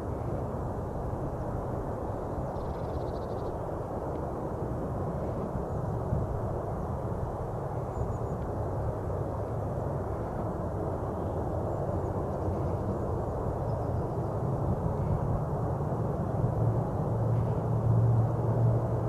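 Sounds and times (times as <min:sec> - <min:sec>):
distant jet engines rumbling: 0:00.0 - 0:19.0.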